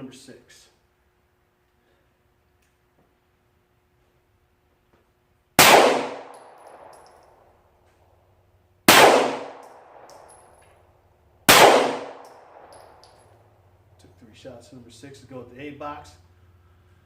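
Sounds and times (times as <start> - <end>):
pistol shots: 5.6 - 7.2, 8.9 - 10.5, 11.5 - 13.2.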